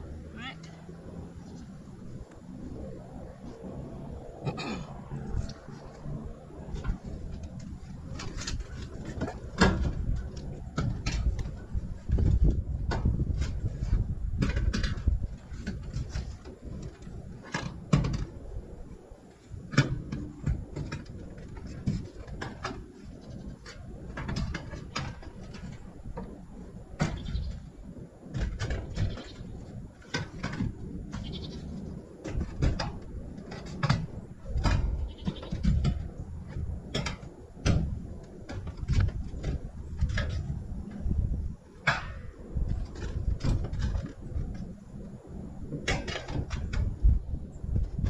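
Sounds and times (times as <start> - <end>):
building work knocks and clatter: 6.6 - 18.4, 19.2 - 48.0
farm animal bleating: 31.2 - 31.7.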